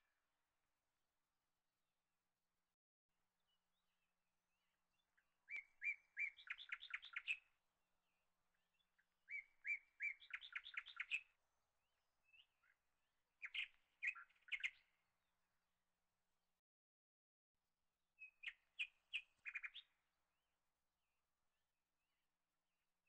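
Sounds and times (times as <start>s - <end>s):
songbird singing: 3.4s - 11.4s, 13.4s - 15.0s, 18.2s - 20.0s.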